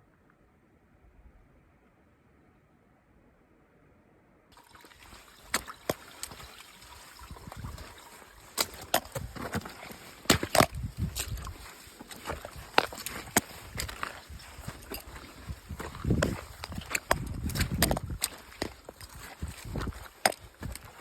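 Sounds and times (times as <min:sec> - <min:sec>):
water splashing and trickling: 0:04.5 - 0:21.0.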